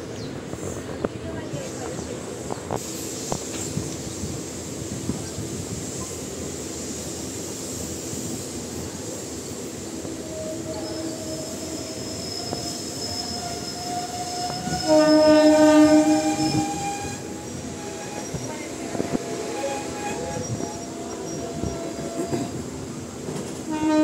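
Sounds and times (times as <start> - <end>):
train wheels rumbling on rail: 0.0 - 24.0
thin metallic squeal: 10.3 - 18.6, 19.5 - 22.5
loud train horn blast: 13.8 - 18.3, 23.7 - 24.0.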